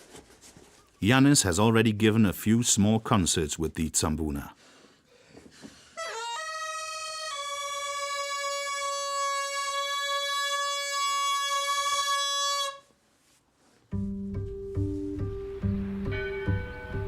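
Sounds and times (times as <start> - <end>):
bagpipe long reedy note: 6.0 - 12.9.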